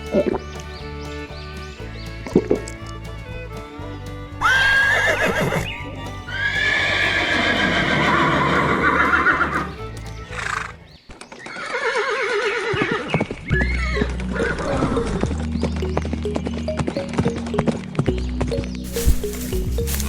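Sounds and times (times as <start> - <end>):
background music: 0.0 - 11.0, 13.4 - 20.0
horse whinnying: 4.4 - 5.7, 6.3 - 9.8, 11.5 - 15.0.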